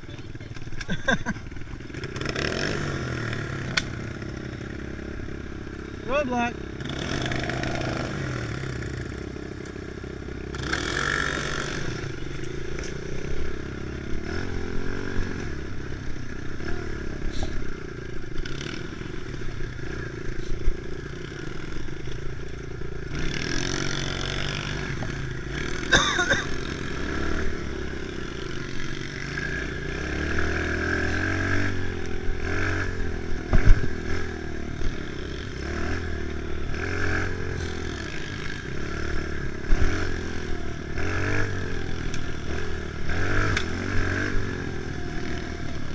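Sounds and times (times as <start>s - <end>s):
dirt bike engine revving: 0.8s - 45.9s.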